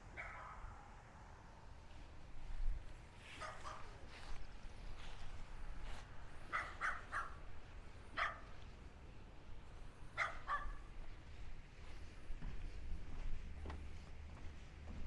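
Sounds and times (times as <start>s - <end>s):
dog barking: 0.1s - 0.8s, 3.3s - 4.0s, 6.5s - 7.4s, 8.2s - 8.6s, 10.2s - 10.9s.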